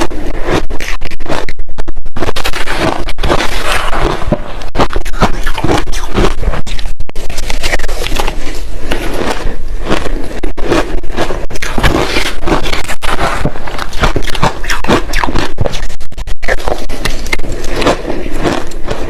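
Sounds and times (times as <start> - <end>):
chewing crushed ice: 2.5 - 15.5, 17.0 - 19.0.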